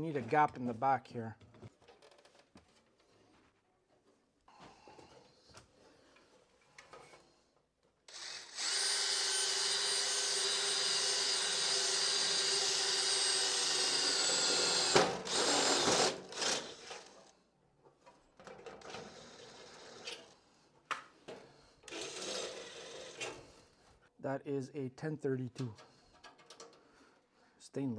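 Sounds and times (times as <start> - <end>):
power drill whining: 8.1 - 17.4, 18.7 - 20.4, 21.8 - 23.6.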